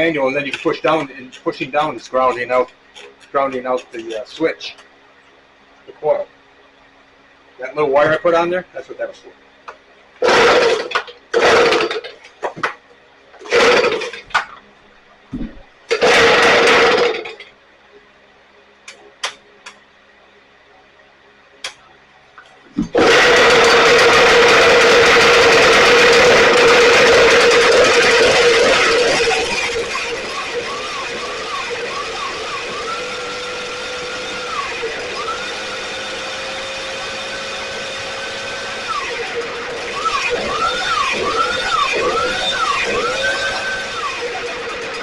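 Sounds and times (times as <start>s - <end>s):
leaf blower running: 10.2s - 12.1s, 13.4s - 14.2s, 15.9s - 17.3s, 22.9s - 45.0s.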